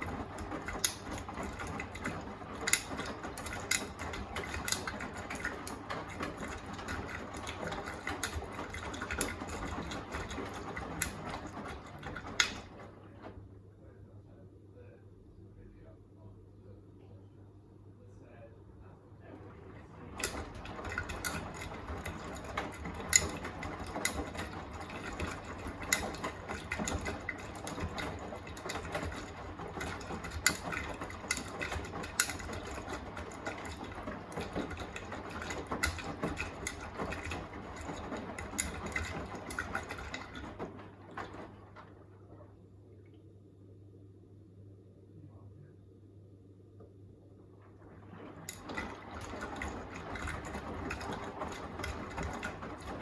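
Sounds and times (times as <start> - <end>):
clicks and knocks of wet load: 0.0 - 12.9, 20.2 - 41.9
washing machine drum tumbling: 0.0 - 13.6, 19.1 - 42.8, 47.4 - 53.0
low steady hum: 0.0 - 53.0.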